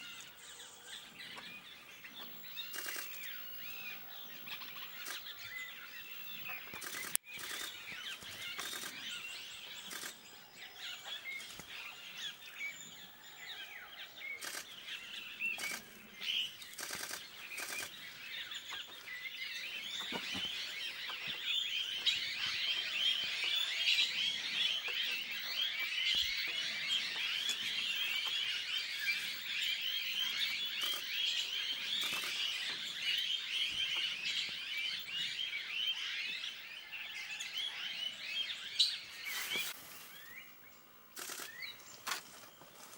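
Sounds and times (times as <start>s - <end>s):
small birds chirping: 0.0s - 42.9s
sharp clicks: 6.7s - 7.7s.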